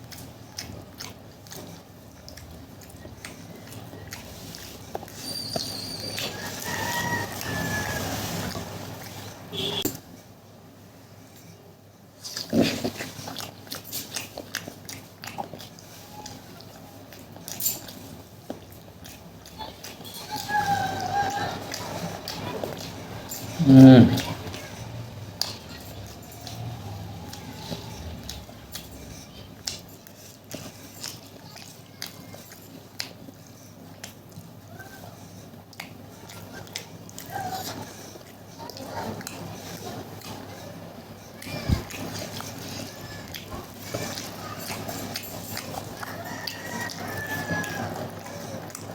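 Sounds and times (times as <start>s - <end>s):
crunchy chewing and biting: 0.0s - 10.0s, 12.2s - 48.9s
wet mouth clicks: 12.2s - 34.6s.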